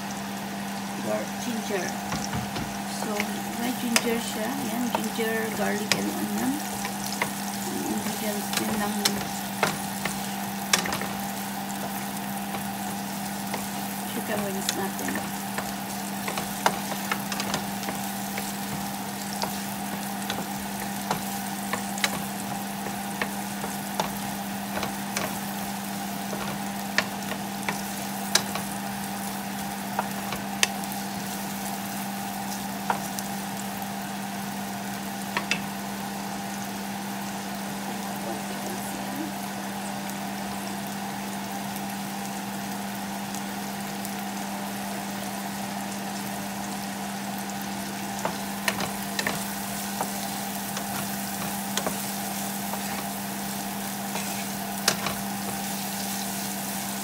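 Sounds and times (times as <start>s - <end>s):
steady low hum: 0.0s - 41.2s
onion sizzling in oil: 0.0s - 57.0s
wooden spatula tapping pan: 2.0s - 31.4s, 32.8s - 33.3s, 35.3s - 35.7s, 48.2s - 56.2s.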